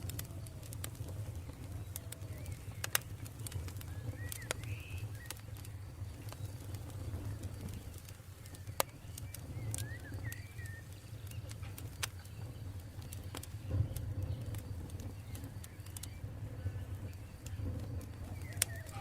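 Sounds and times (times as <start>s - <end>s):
campfire crackling and popping: 0.0s - 19.0s
steady low rumble: 0.0s - 19.0s
bird chirping: 3.8s - 11.5s, 12.1s - 19.0s.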